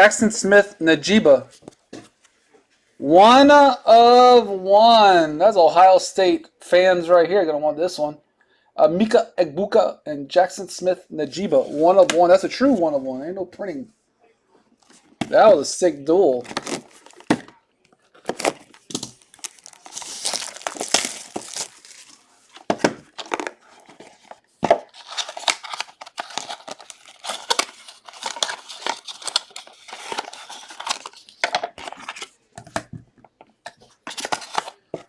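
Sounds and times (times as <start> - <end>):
wrapper tearing and rustling: 16.4 - 32.4, 34.0 - 34.9.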